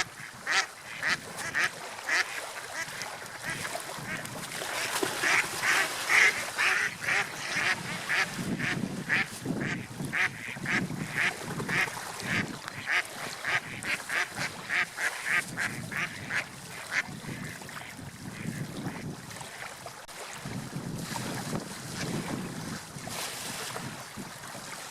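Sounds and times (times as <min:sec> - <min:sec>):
sea rushing: 0:00.0 - 0:24.9.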